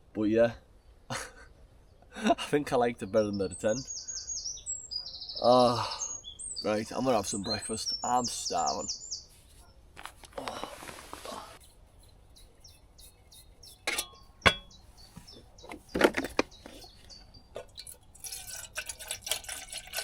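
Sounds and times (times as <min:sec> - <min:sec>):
small birds chirping: 0:00.2 - 0:18.4
rustling: 0:09.2 - 0:14.1
camp gear clinking: 0:13.7 - 0:19.9.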